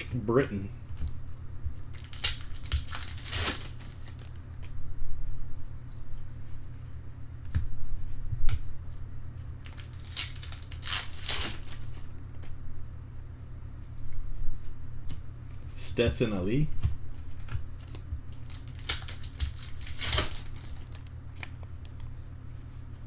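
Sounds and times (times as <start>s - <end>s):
steady low hum: 0.0s - 23.0s
cards and foil wrappers rustling: 1.8s - 4.4s, 9.4s - 12.1s, 17.8s - 22.0s.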